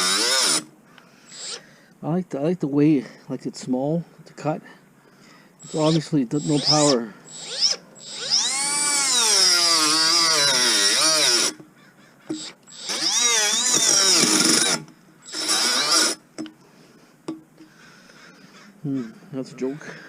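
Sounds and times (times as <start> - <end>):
cordless cutting tool motor whine: 0.0 - 0.7, 5.6 - 11.6, 12.3 - 16.2.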